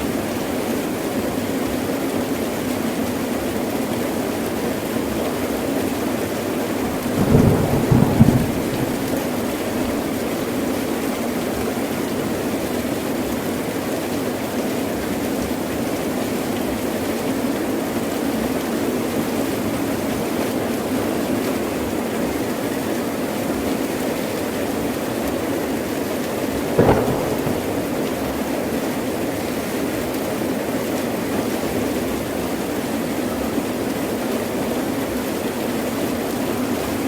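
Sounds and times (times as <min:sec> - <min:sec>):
heavy rain falling: 0:03.2 - 0:18.1, 0:19.1 - 0:37.0
thunder clap: 0:06.9 - 0:10.3, 0:26.8 - 0:29.3.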